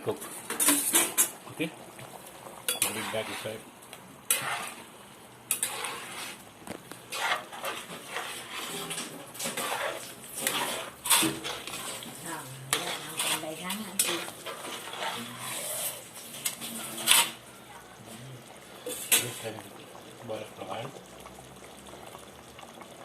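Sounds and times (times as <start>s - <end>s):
spoon scraping a cooking pot: 2.7s - 3.6s, 4.3s - 4.9s, 5.5s - 6.4s, 7.1s - 17.4s, 18.8s - 19.5s.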